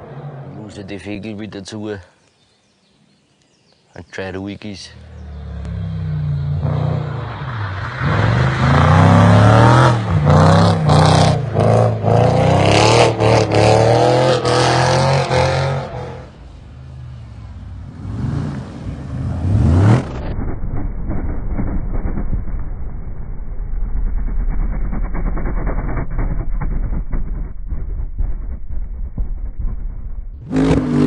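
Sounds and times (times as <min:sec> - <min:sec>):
engine revving hard: 0:08.0 - 0:16.2, 0:30.4 - 0:31.0.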